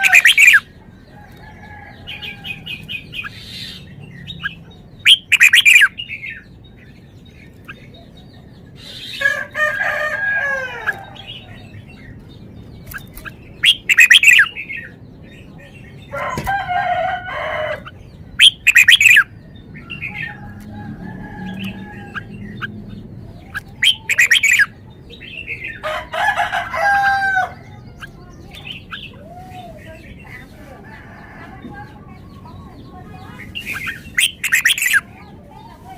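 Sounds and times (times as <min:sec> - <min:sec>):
roosters crowing: 0:00.0 - 0:04.7, 0:08.6 - 0:12.0, 0:16.0 - 0:28.4, 0:29.0 - 0:32.5
bird calls with falling tones: 0:00.0 - 0:35.9
bulbul singing: 0:00.0 - 0:35.9.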